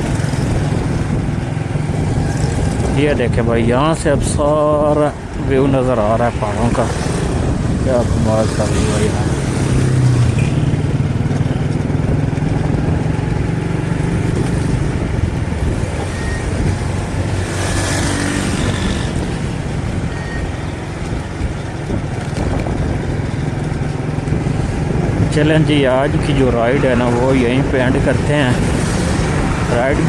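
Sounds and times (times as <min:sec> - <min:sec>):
motorcycle engine running: 0:00.0 - 0:03.3, 0:06.8 - 0:30.0
road noise: 0:00.0 - 0:30.0.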